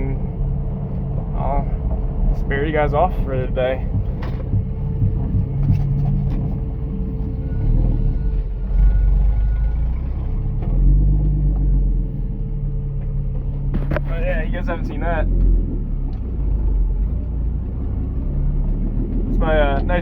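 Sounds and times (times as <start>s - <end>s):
engine loud low rumble: 0.0s - 20.0s.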